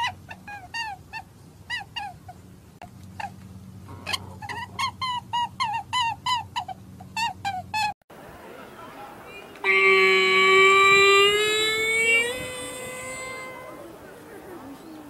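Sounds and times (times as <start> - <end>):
high-pitched squeaky animal calls: 9.6 - 13.9
low hum: 9.6 - 14.6.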